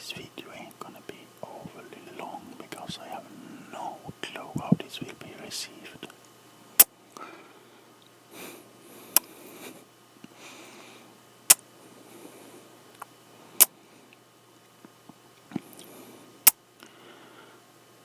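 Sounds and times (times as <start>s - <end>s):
soft breathing: 0.4s - 6.0s, 7.1s - 11.2s, 11.8s - 12.8s, 15.5s - 17.7s
mouth clicks: 9.1s - 9.3s.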